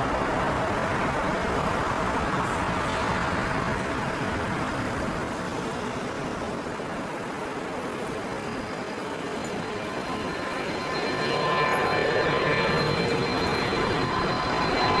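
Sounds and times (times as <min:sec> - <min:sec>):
airport and road traffic roar: 0:00.0 - 0:15.0
high engine whine: 0:08.2 - 0:15.0.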